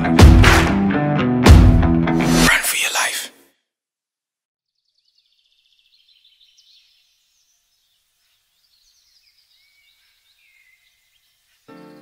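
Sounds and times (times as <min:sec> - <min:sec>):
small birds chirping: 0:04.7 - 0:12.0.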